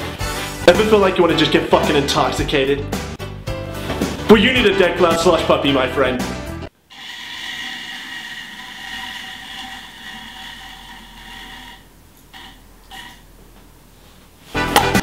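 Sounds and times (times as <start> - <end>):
small electric motor whirring: 6.9 - 12.6.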